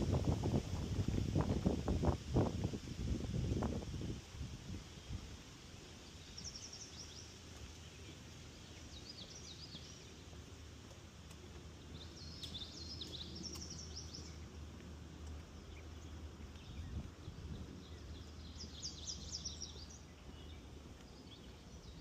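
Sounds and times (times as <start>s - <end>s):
songbird singing: 3.2s - 22.0s.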